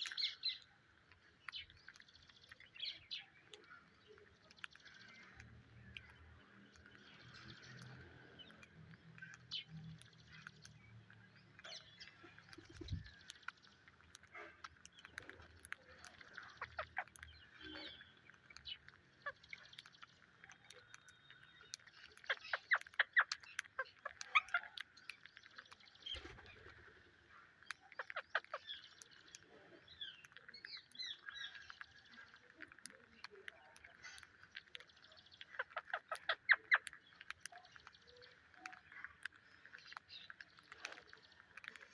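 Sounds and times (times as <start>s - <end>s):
parakeets chattering: 2.6s - 25.1s, 27.4s - 41.6s
high bird chirps: 16.3s - 24.8s.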